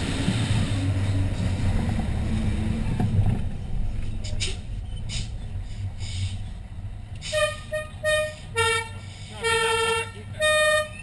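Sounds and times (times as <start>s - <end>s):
truck engine rumble: 0.0s - 11.0s
fire engine horn blasts: 7.2s - 11.0s.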